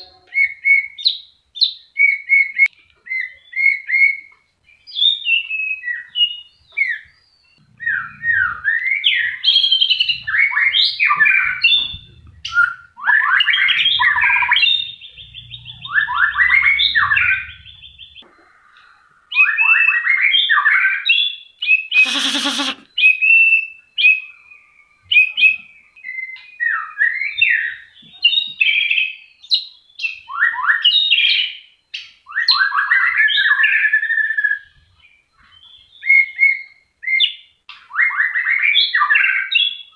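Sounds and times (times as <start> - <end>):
bird singing whistled phrases: 0.0 - 18.2, 19.3 - 39.9
bird harsh rasp: 22.0 - 22.9.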